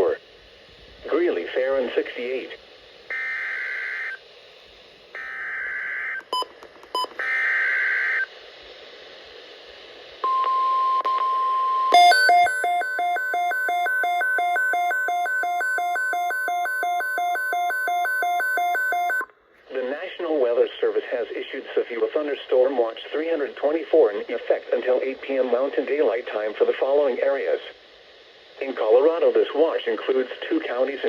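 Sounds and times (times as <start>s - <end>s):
steady warning alarm tone: 11.6s - 19.3s
rapid pulsing electronic beep: 12.0s - 19.2s.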